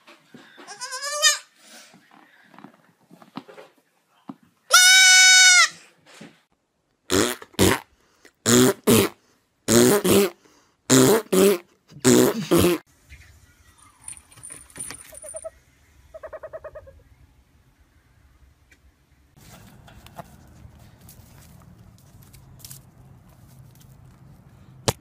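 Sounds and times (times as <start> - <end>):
goat kid bleating: 0.7 - 1.5, 4.7 - 5.8
owl trilling: 15.2 - 17.1.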